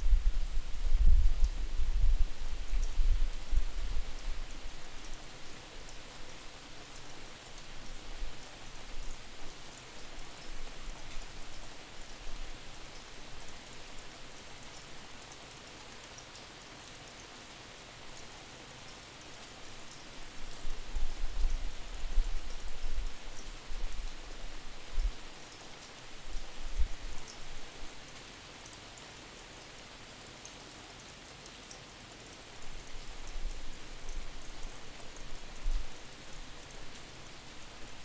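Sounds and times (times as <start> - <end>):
wind buffeting microphone: 0.0 - 4.0
rain falling with drips: 0.0 - 38.0.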